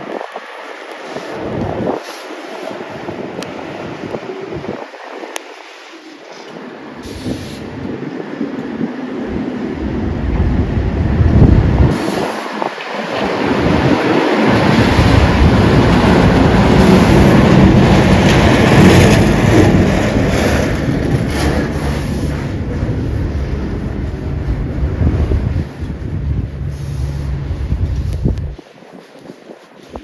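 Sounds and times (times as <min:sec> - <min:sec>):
heavy vehicle passing on slush: 0:11.9 - 0:28.5.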